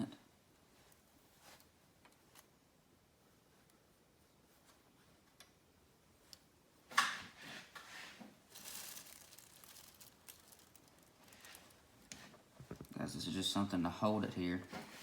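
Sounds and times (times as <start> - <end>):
tools rustling and scraping: 7.0 - 13.0.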